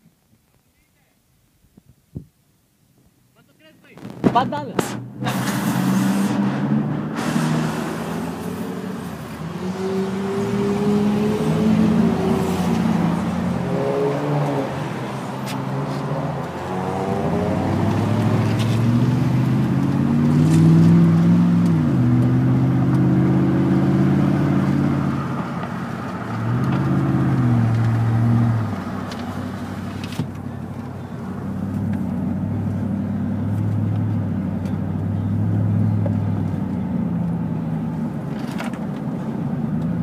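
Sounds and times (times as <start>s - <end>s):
road noise: 2.5s - 40.0s
vehicle engine accelerating: 4.1s - 40.0s.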